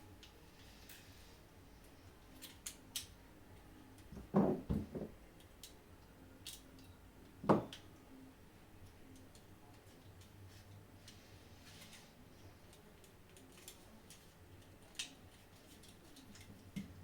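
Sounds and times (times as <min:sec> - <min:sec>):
knocks on work surface: 0:04.3 - 0:05.1, 0:07.4 - 0:07.7
light clicks of small objects: 0:08.8 - 0:17.0.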